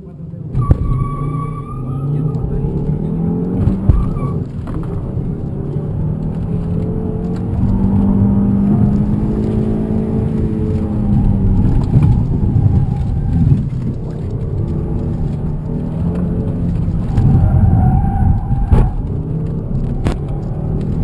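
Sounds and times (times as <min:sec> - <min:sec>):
car engine under hard driving: 0:00.0 - 0:21.0
short thump: 0:00.5 - 0:01.0, 0:03.6 - 0:05.0.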